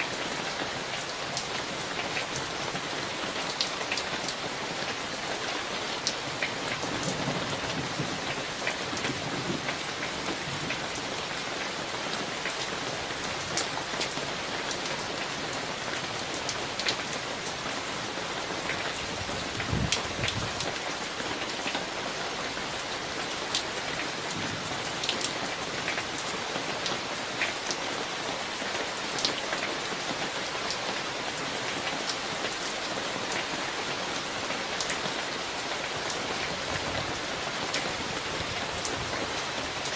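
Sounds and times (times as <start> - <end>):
raindrops striking close by: 0.0 - 39.9
steady rain hiss: 0.0 - 39.9.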